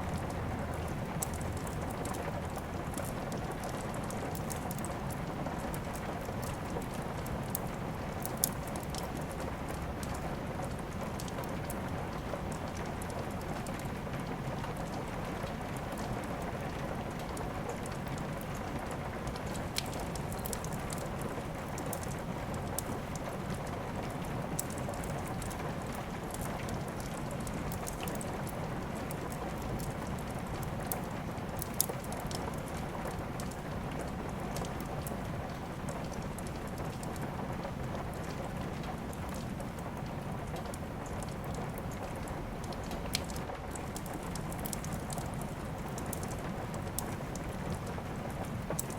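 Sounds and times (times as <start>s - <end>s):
steady rain hiss: 0.0s - 48.9s
wood fire crackling and popping: 0.1s - 48.9s.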